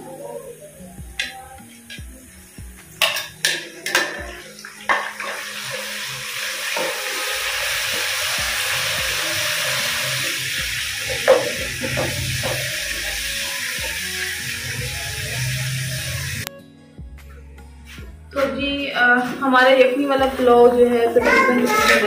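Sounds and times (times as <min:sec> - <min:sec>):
paste sizzling: 0:01.6 - 0:16.5.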